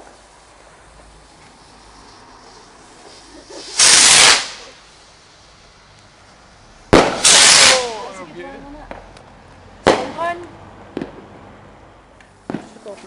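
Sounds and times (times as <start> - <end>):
fireworks bursts: 0.0 - 5.8, 6.8 - 8.2, 9.8 - 11.2, 12.4 - 13.0.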